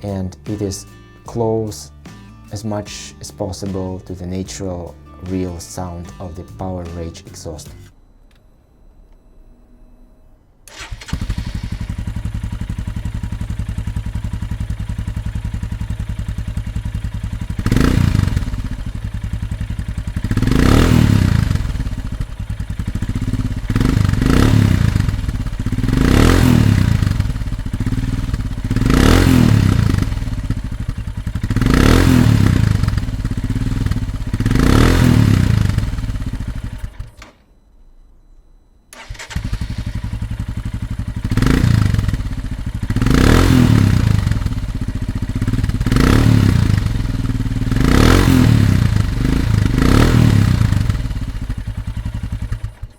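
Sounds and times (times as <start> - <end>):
motorcycle engine idling and revving: 10.7 - 37.2, 38.9 - 52.9.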